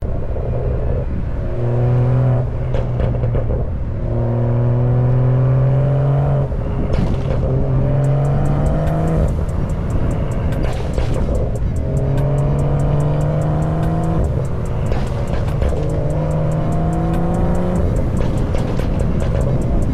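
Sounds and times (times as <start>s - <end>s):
car engine accelerating hard: 0.1s - 19.9s
exhaust pops and crackles: 2.6s - 3.8s, 6.8s - 19.9s.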